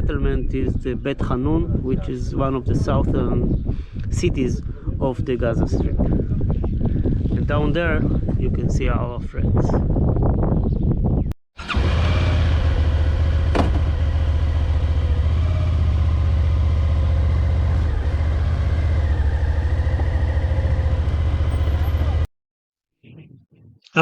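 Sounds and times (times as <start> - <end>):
motorcycle engine running: 11.6 - 22.3.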